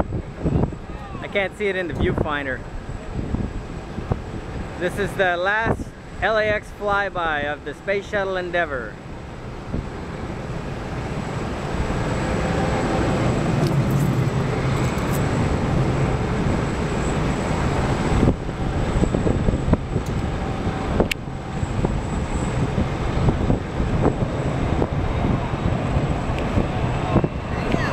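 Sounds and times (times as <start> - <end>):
jet engines rumbling: 0.0 - 27.9.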